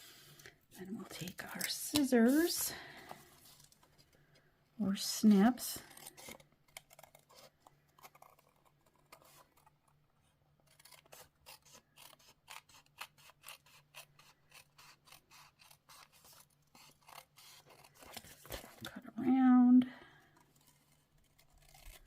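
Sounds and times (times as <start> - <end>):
small scissors snipping paper: 5.5 - 10.0, 10.6 - 18.8, 20.4 - 22.0.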